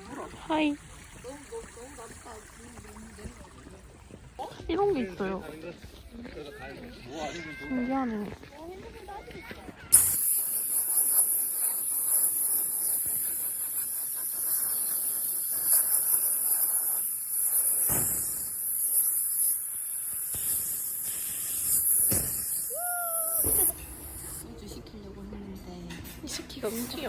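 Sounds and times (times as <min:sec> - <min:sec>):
loud high-pitched hiss: 0:09.9 - 0:24.4.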